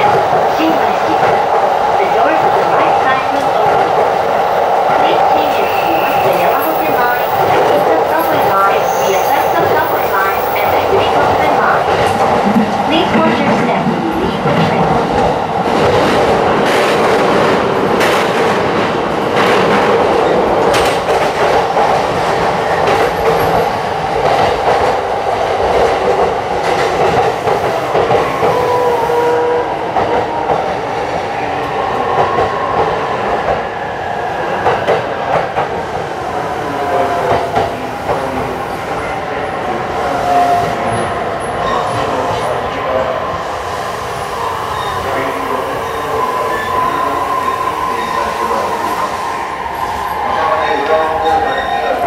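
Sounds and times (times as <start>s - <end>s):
train wheels rumbling on rail: 0.0s - 52.0s
clickety-clack over rail joints: 6.1s - 28.6s.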